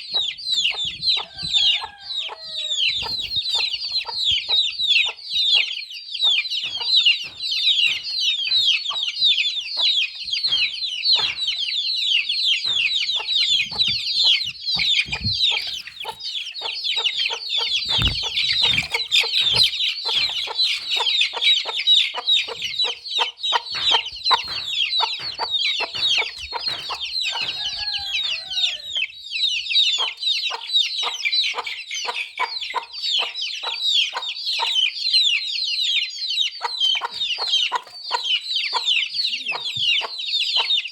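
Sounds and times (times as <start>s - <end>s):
chicks peeping: 0.0s - 40.9s
sharp taps: 6.3s - 11.9s, 12.5s - 28.7s.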